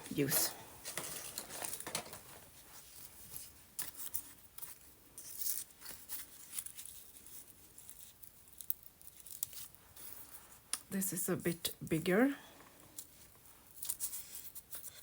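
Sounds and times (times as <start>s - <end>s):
paper rustling and scraping: 0.1s - 8.3s.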